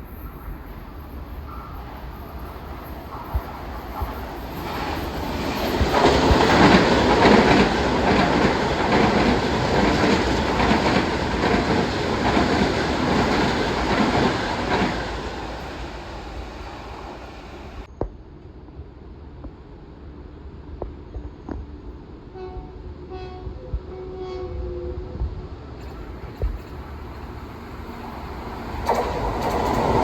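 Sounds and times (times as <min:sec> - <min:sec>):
train wheels on rails: 0:00.0 - 0:17.9, 0:25.2 - 0:30.0.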